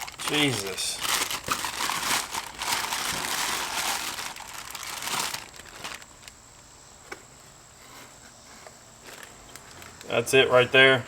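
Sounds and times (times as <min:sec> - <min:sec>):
packaging crinkling and rustling: 0:00.0 - 0:06.4, 0:09.0 - 0:10.0.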